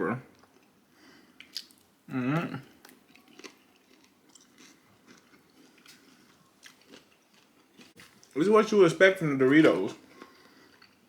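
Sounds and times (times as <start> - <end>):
person chewing wetly: 1.4 - 1.8, 2.4 - 8.4, 10.0 - 11.0.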